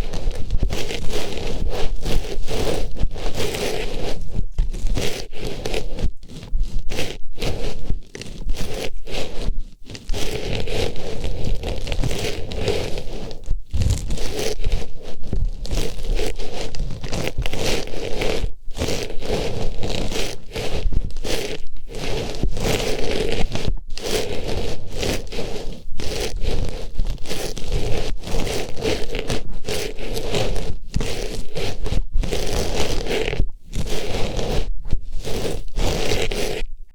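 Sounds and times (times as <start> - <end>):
close rustling and scratching: 0.0 - 36.9.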